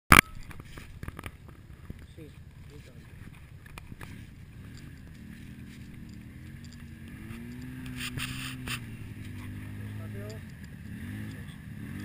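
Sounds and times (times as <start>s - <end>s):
motorcycle engine revving: 0.6s - 12.0s
scraping burst: 7.2s - 9.1s.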